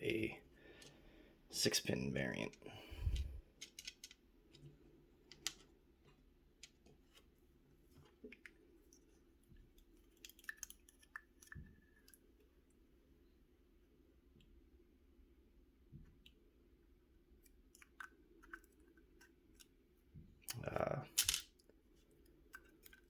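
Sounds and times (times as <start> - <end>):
small metal lock parts clicking: 3.1 - 4.7, 21.1 - 21.6.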